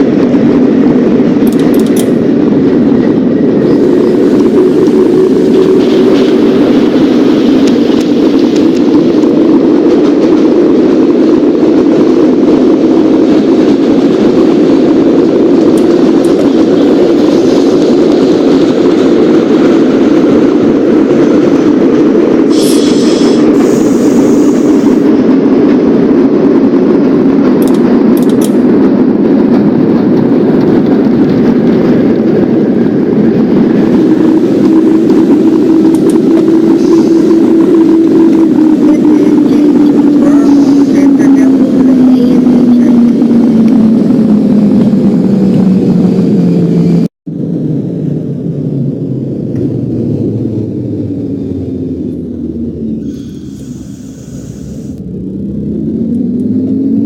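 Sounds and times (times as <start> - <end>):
subway train rumbling: 0.0 - 57.0
high-pitched squeal: 51.0 - 55.6.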